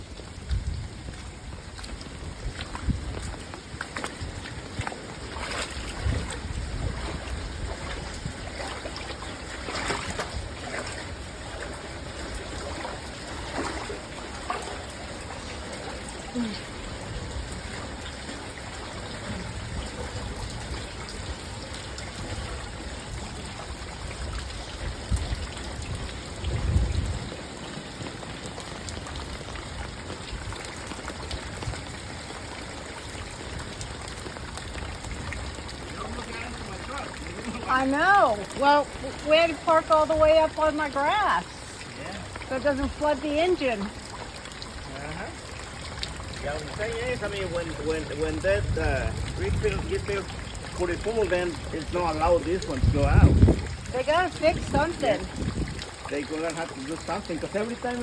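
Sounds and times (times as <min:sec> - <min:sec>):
rain and running floodwater: 0:00.0 - 0:58.0
low rumbles on microphone: 0:24.3 - 0:27.5, 0:52.8 - 0:54.0.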